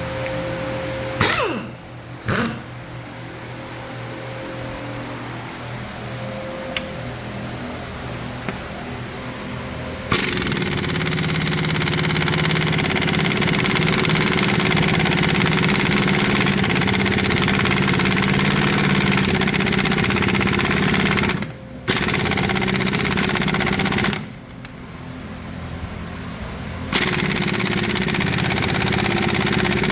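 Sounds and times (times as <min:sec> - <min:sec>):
impact wrench hammering: 0:01.2 - 0:02.8, 0:10.1 - 0:24.4, 0:26.9 - 0:29.9.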